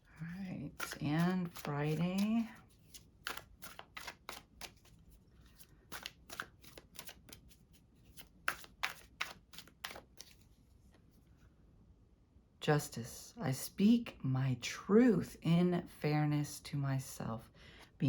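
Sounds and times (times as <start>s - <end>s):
cards being shuffled: 0.2s - 11.0s.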